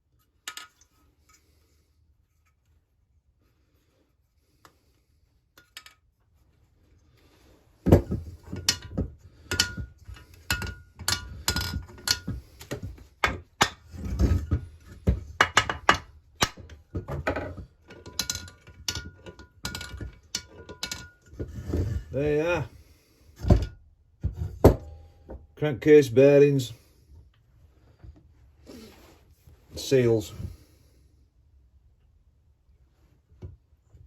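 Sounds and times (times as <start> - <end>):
metallic knocks and clinks: 8.0 - 12.4, 15.4 - 21.4.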